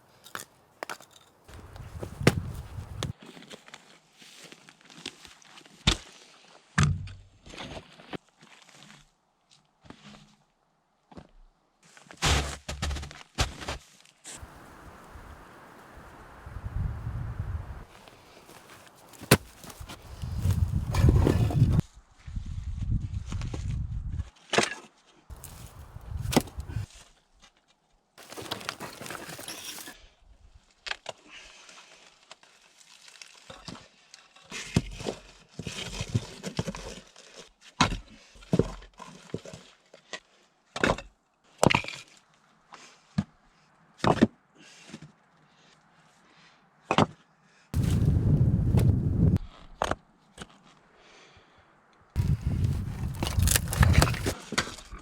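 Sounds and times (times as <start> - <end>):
wood cracking and knocking: 0.8 - 3.1, 18.4 - 21.8, 25.3 - 26.8, 52.2 - 54.4.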